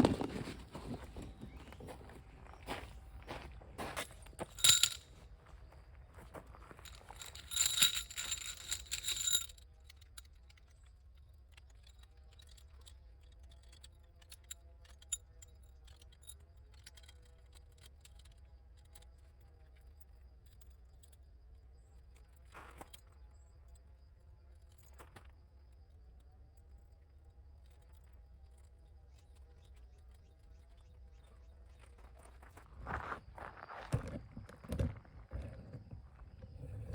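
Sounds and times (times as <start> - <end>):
metal jingling: 4.1 - 5.2, 6.7 - 10.1.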